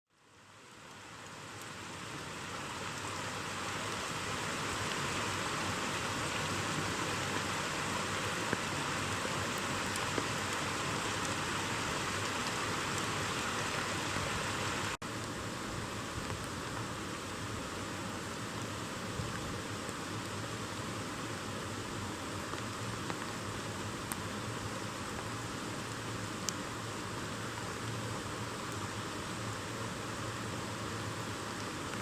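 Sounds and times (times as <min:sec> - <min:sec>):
heavy rain falling: 0:00.6 - 0:32.0.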